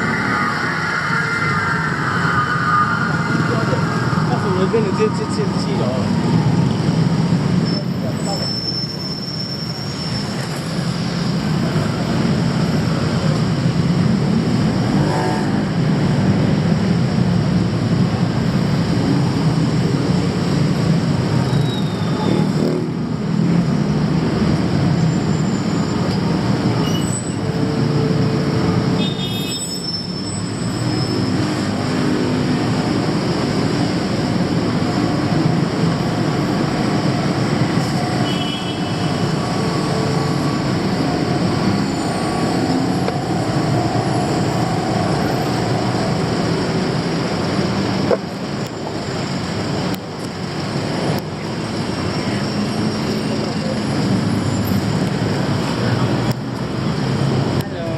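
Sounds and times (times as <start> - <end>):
rumble of moving vehicles: 0.0 - 57.9.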